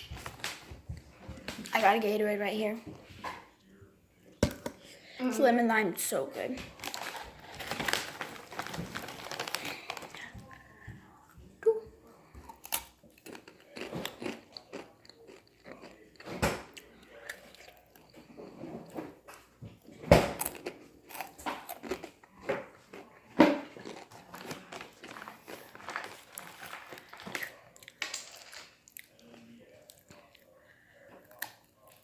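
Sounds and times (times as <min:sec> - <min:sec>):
person crunching chips: 0:06.7 - 0:10.2, 0:12.4 - 0:16.2, 0:20.4 - 0:22.4, 0:23.7 - 0:28.0.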